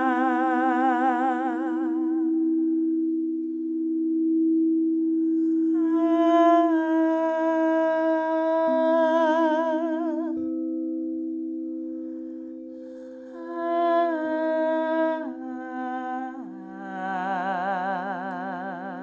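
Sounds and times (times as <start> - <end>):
singing bowl tones: 0.0 - 19.0
high voice singing long note: 5.7 - 10.5, 13.3 - 19.0.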